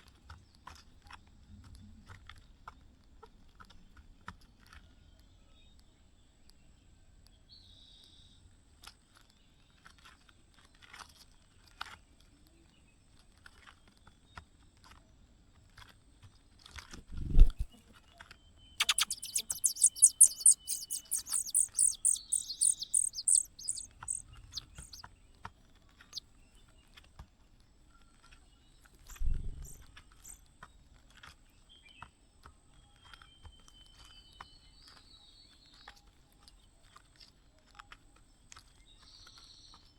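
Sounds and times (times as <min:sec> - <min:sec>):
nestlings cheeping: 0:18.8 - 0:25.0.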